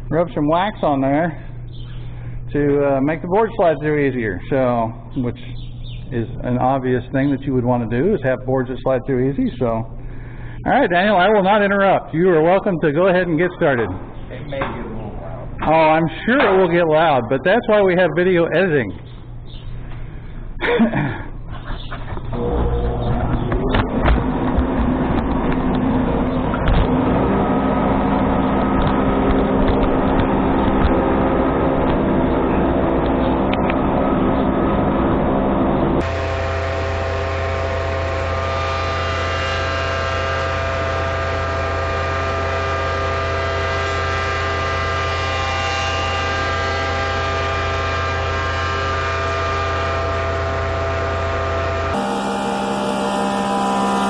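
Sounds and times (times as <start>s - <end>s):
thickness planer running: 22.3s - 54.0s.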